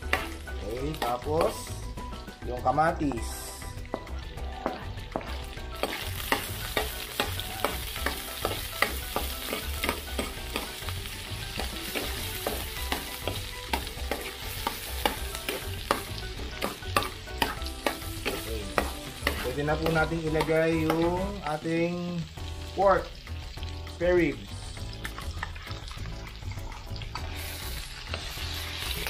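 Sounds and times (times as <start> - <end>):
vegetables sizzling in oil: 0.0 - 29.0
metal spoon scraping a pan: 5.2 - 10.8, 11.6 - 20.0.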